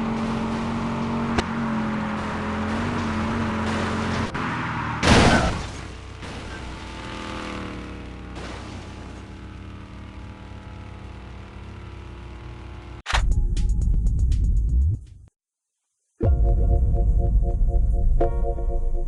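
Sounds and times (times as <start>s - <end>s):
cartoon car engine running: 5.3s - 13.0s.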